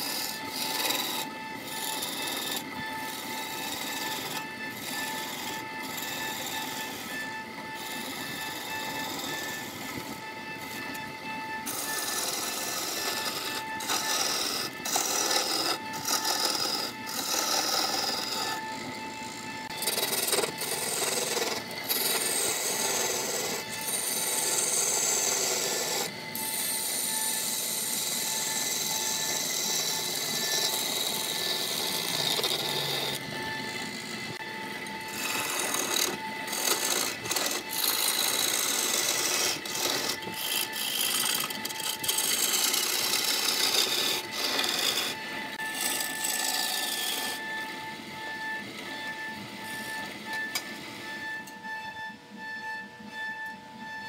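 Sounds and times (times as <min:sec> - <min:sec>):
turning tool cutting spinning wood: 0:00.0 - 0:51.6
lathe motor whine: 0:00.0 - 0:54.0.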